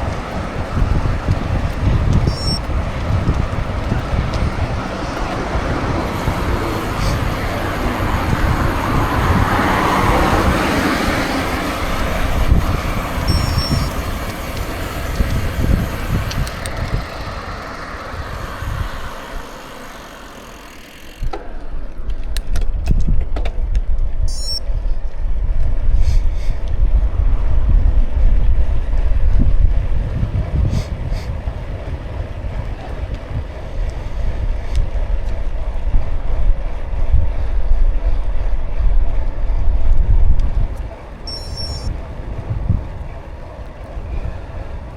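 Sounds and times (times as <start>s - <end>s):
tyre noise on road: 0.0s - 44.9s
wind buffeting microphone: 0.0s - 44.9s
small clicks: 13.2s - 17.4s.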